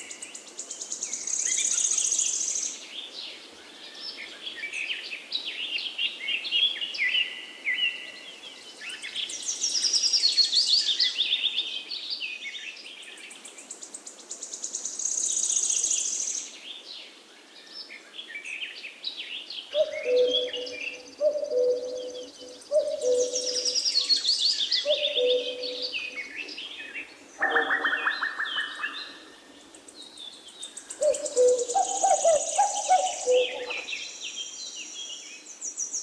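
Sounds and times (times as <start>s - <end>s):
songbirds chirping and whistling: 0.0s - 36.0s
high rapid bird trill: 27.4s - 29.2s.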